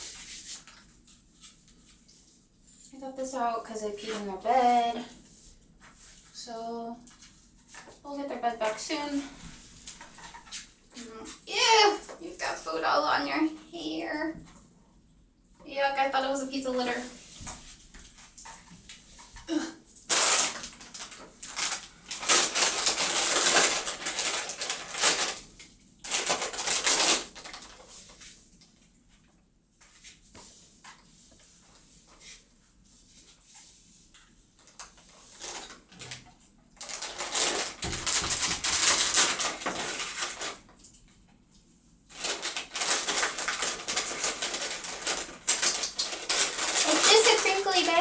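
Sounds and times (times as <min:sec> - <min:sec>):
plastic bag rustling: 0:16.5 - 0:28.5, 0:34.6 - 0:40.8, 0:42.1 - 0:48.0.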